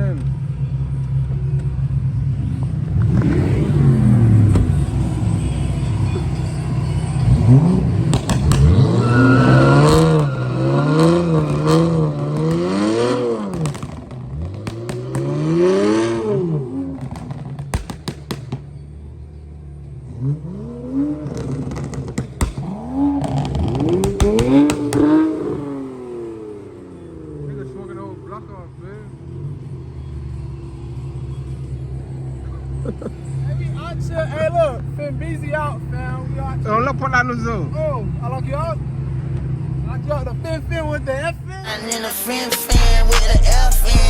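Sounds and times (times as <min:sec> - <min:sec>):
car exhaust revving: 0:01.5 - 0:38.2
exhaust cracks: 0:02.5 - 0:18.9, 0:20.1 - 0:26.8.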